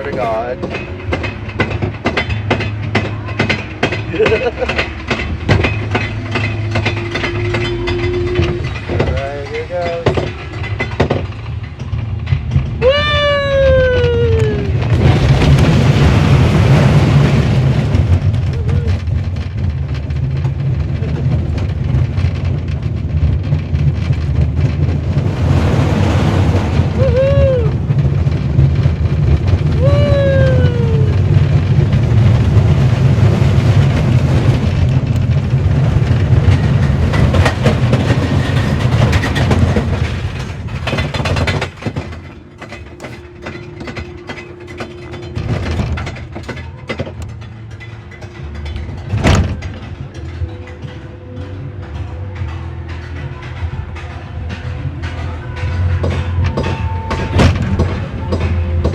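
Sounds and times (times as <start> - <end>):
rising and falling squeals: 0.0 - 10.9
roller coaster wheels rumbling: 0.0 - 58.9
rushing wind: 0.0 - 58.9.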